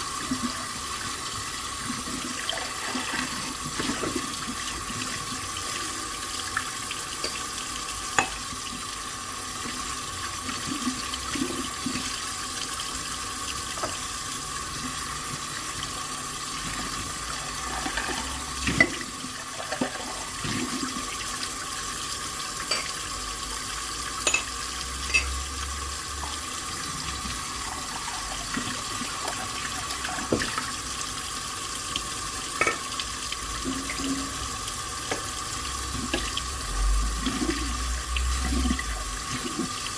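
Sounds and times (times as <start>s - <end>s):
tap water running into sink: 0.0s - 39.9s
dishes clinking: 22.6s - 23.0s, 24.2s - 25.4s, 32.6s - 32.9s.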